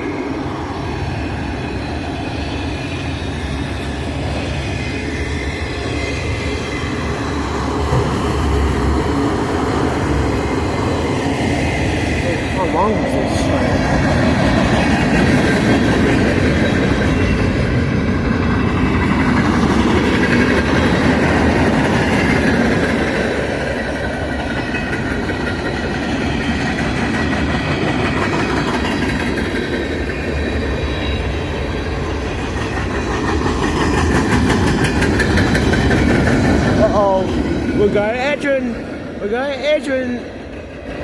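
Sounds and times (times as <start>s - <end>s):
train cars rumbling past: 0.0s - 41.0s
wheels clattering over rail joints: 32.3s - 38.3s.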